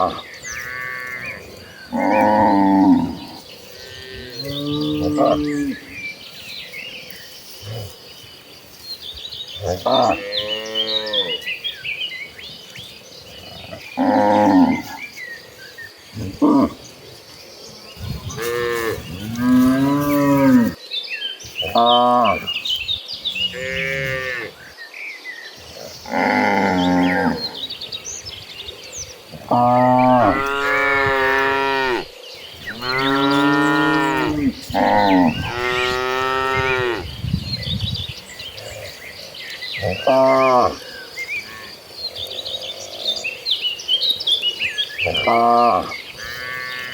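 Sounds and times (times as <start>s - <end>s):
small birds chirping: 0.0s - 46.9s
cattle mooing: 29.4s - 37.0s.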